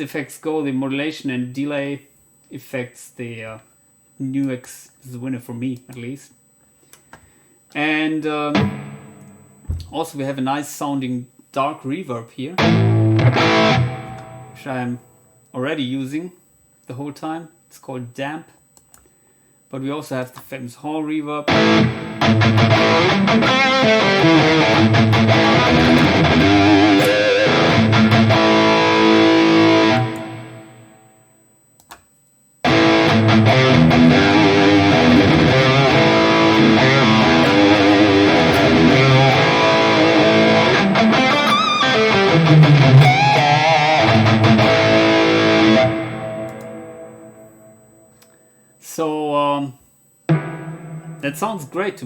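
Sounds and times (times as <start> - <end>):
electric guitar with reverb: 8.5 - 9.9, 12.6 - 15.2, 21.5 - 31.3, 32.6 - 48.7, 50.3 - 52.0.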